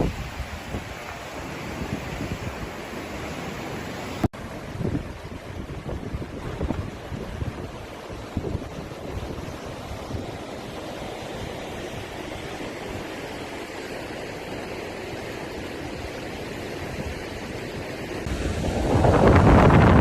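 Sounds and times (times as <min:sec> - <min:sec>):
wind buffeting microphone: 0:00.0 - 0:02.8, 0:04.4 - 0:10.5, 0:18.2 - 0:20.0
rushing water: 0:00.0 - 0:20.0.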